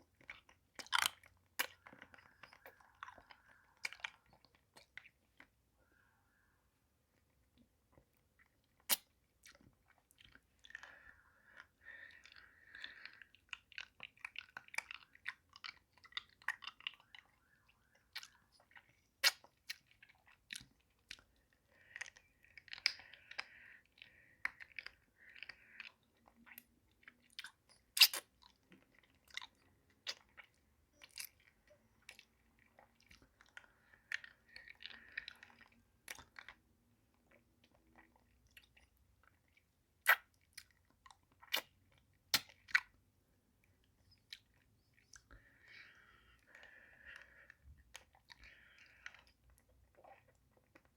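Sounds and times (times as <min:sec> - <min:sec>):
wet sucking and smacking: 0:07.2 - 0:36.6, 0:37.3 - 0:43.0.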